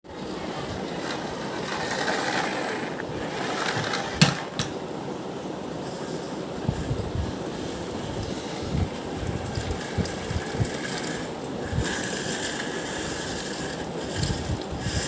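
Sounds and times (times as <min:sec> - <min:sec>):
toy car rolling with rattling: 0:00.3 - 0:04.7, 0:09.0 - 0:15.0.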